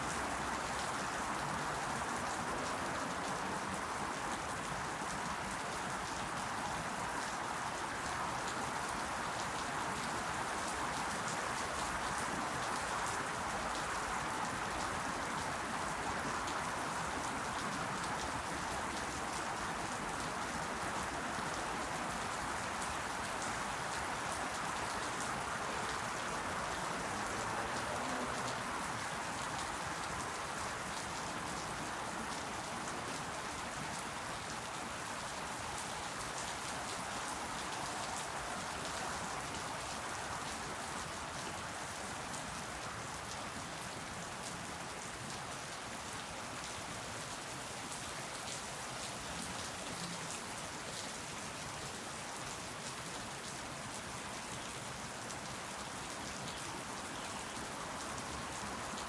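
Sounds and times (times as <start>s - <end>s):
faint ticks of raindrops: 0.0s - 59.0s
steady rain falling: 0.0s - 59.0s.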